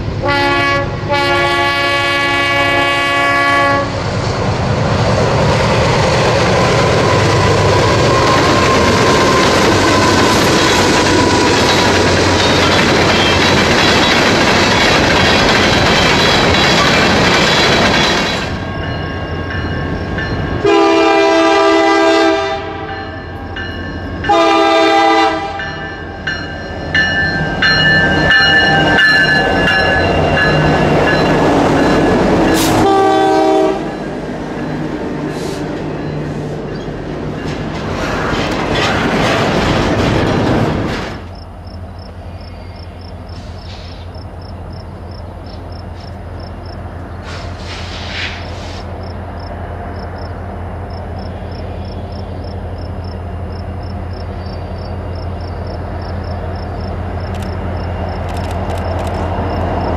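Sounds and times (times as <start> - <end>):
distant train rumble: 0.0 - 59.9
locomotive air horn blasts: 0.2 - 4.0, 20.6 - 23.1, 24.3 - 25.8, 32.5 - 34.0
freight cars over rail joints: 35.6 - 41.4.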